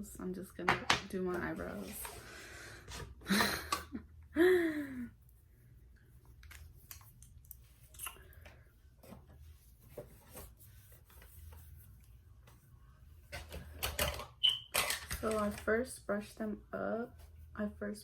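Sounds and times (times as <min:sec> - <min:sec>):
makeup scratching and clicking: 0:15.0 - 0:15.9.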